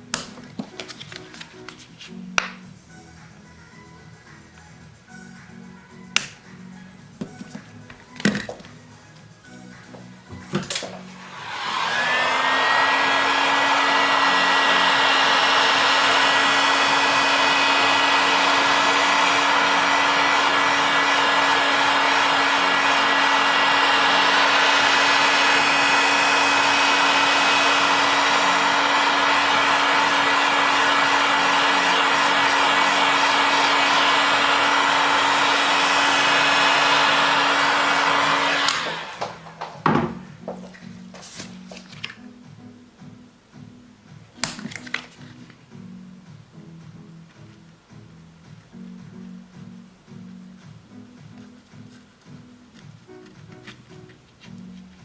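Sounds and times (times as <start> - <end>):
hot-air gun blowing with whine: 9.5 - 40.4.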